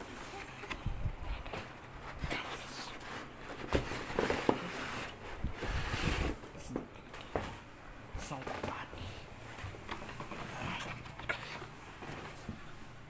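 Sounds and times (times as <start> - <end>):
packaging rustling: 0.0 - 6.5.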